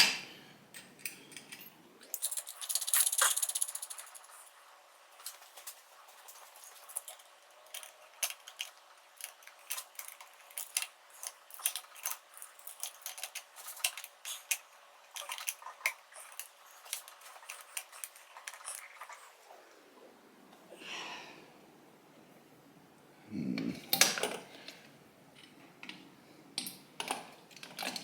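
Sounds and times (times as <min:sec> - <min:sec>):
metal parts and tools clinking: 0:00.7 - 0:04.4, 0:06.7 - 0:18.8.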